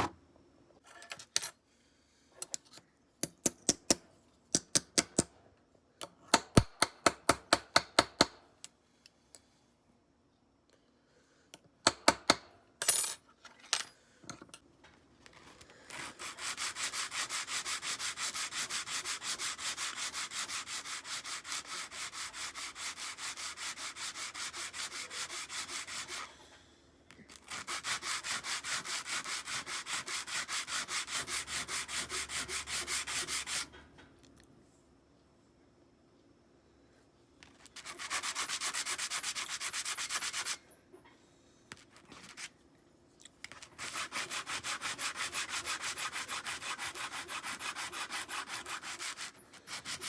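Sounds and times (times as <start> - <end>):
hand sanding strokes: 15.9 - 26.4, 27.4 - 33.7, 37.8 - 40.7, 43.6 - 50.0.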